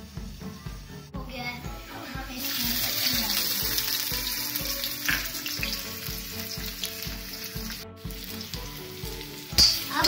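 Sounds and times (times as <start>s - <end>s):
background music with beat: 0.0s - 10.0s
food sizzling in hot oil: 0.0s - 10.0s.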